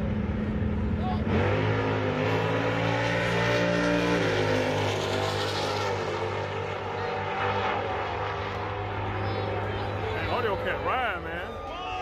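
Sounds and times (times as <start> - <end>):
drag racing car engines: 0.0 - 12.0.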